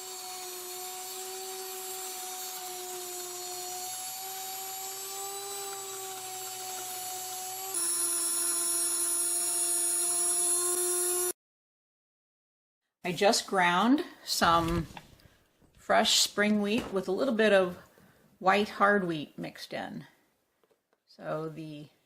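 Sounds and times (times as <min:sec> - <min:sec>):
grain mill whining: 0:00.0 - 0:11.3.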